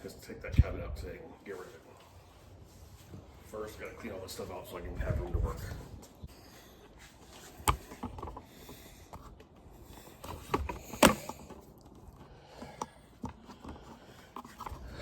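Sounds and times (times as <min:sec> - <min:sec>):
objects knocking and clunking: 0:07.5 - 0:09.6.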